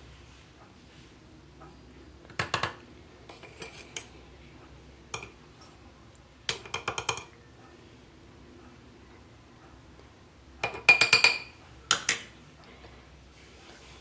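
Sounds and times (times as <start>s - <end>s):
metal utensil scraping a pan: 3.3s - 4.1s.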